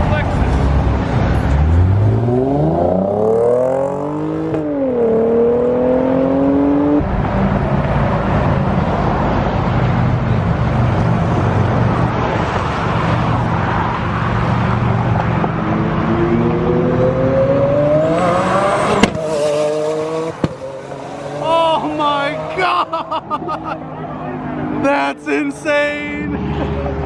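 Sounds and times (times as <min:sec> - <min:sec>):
road noise: 0:00.0 - 0:27.0
car engine accelerating hard: 0:00.5 - 0:09.8, 0:14.8 - 0:25.3.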